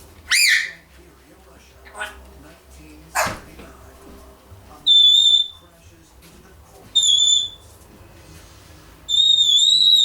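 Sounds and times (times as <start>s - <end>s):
parrot whistling: 0.3s - 0.8s, 4.8s - 5.6s, 7.0s - 7.6s, 9.1s - 10.0s.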